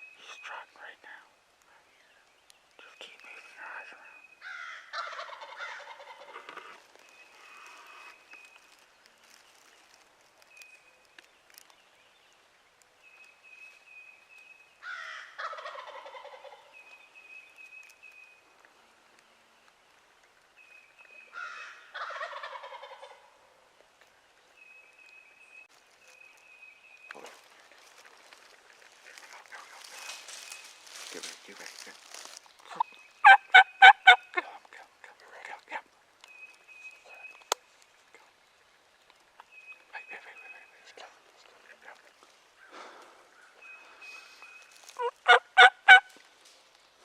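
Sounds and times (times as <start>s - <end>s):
turkey gobbling: 4.9s - 6.8s, 15.4s - 16.6s, 21.9s - 23.3s, 32.7s - 34.4s, 45.0s - 46.1s.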